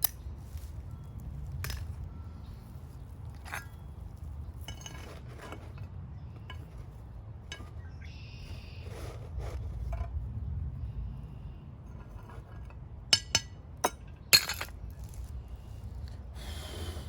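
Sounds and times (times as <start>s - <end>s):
steady low rumble: 9.6s - 17.0s.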